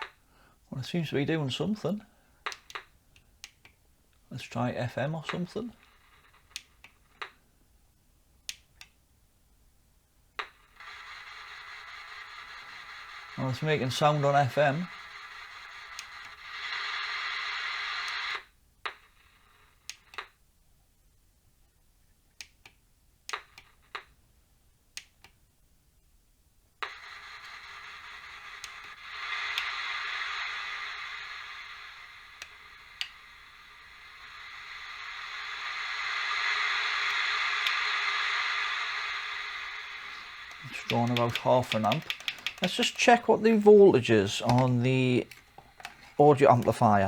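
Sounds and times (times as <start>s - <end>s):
radio fm sound: 0.7s - 2.7s, 4.3s - 6.0s, 10.8s - 18.4s, 26.8s - 47.0s
sharp clicks: 2.4s - 4.2s, 22.3s - 24.1s, 32.3s - 33.4s, 34.1s - 46.9s
radio buttons clicking: 38.9s - 47.0s.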